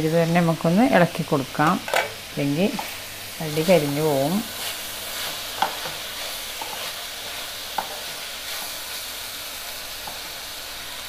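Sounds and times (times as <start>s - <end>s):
cabbage sizzling in frying pan: 0.0s - 11.0s.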